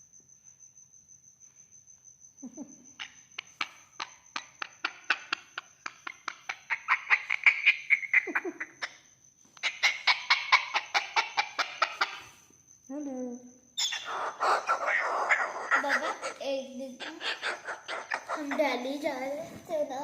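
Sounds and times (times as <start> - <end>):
parrot clicking calls: 3.0 - 9.0, 9.6 - 12.3, 13.8 - 18.7.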